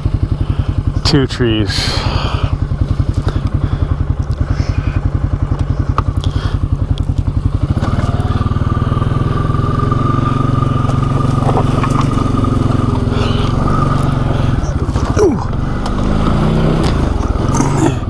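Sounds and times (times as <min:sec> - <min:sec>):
quad bike engine running: 0:00.0 - 0:18.0.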